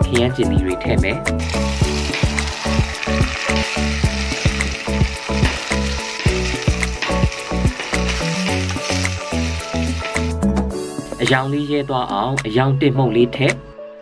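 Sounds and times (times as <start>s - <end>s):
background music with beat: 0.0s - 11.5s
metal spoon stirring in pot: 1.4s - 10.4s
food sizzling in hot oil: 1.4s - 11.1s.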